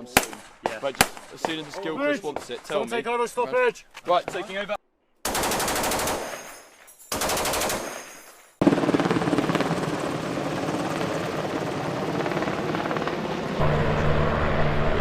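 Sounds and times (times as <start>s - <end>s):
machine gun burst: 5.3s - 6.5s, 7.1s - 8.1s
low rumbling noise: 13.6s - 15.0s.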